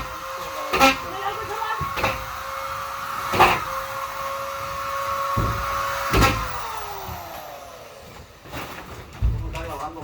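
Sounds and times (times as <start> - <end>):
vacuum cleaner motor whining: 0.0 - 8.5
knocks: 4.8 - 7.2.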